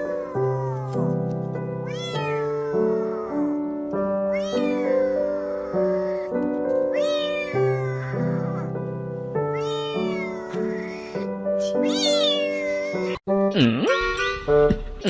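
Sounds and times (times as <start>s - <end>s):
cat meowing: 0.0s - 1.2s, 1.8s - 8.8s, 9.4s - 13.2s.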